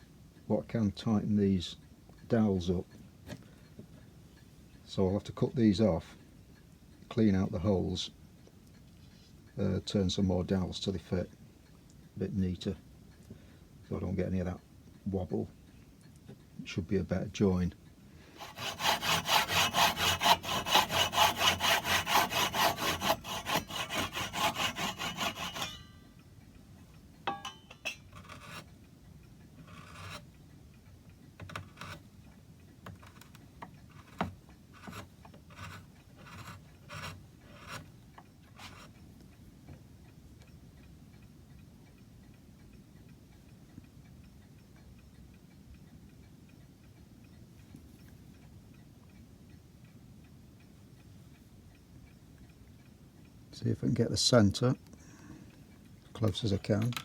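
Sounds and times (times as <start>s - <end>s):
hand saw cutting wood: 18.4s - 25.9s, 27.9s - 28.7s, 29.6s - 30.2s, 31.5s - 32.0s, 33.9s - 37.9s, 38.6s - 38.9s.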